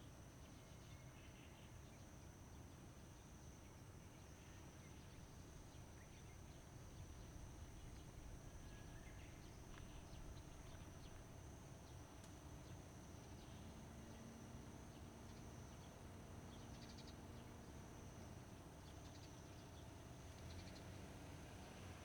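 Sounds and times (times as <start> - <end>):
faint ticks: 9.6 - 12.5.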